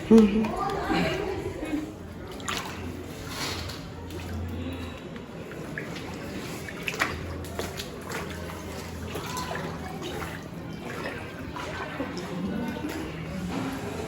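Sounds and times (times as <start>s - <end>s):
water splashing and trickling: 0.0s - 14.0s.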